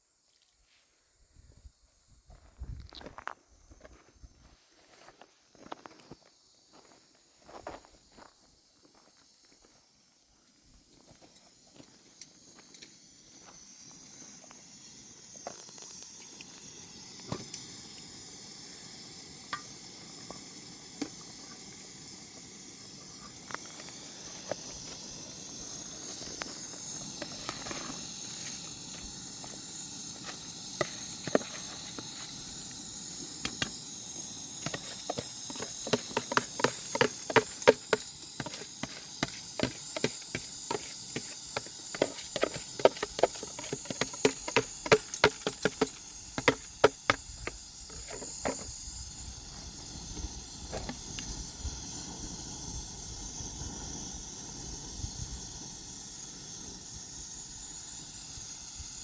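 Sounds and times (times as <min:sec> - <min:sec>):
steady high hiss: 0:05.6 - 0:59.0
sharp knocks and taps: 0:34.6 - 0:48.6.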